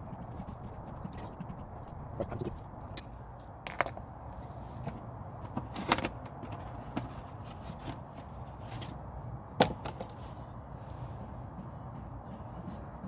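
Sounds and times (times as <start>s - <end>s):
low steady hum: 0.0s - 5.6s
tools clicking and knocking: 3.0s - 4.0s.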